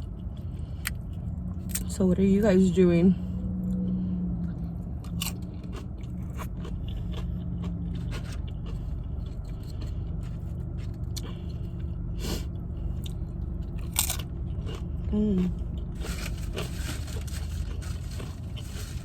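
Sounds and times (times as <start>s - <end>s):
chewing and crunching: 0.0s - 2.1s, 3.6s - 19.0s
steady low hum: 0.0s - 19.0s.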